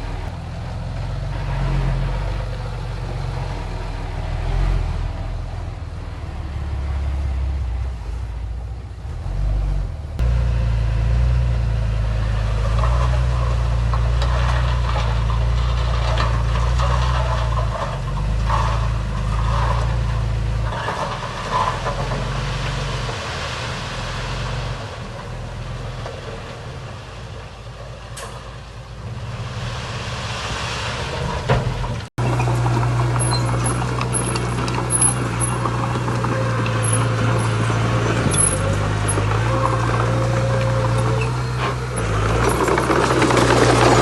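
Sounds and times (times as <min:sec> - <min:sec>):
heavy diesel machinery running: 0:00.0 - 0:44.0
rattling and scraping: 0:12.3 - 0:22.9, 0:31.1 - 0:44.0.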